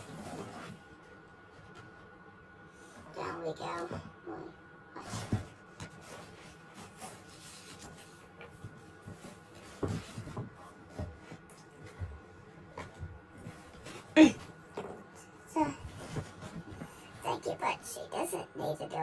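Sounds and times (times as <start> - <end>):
toys tapping and rubbing: 5.0 - 17.5.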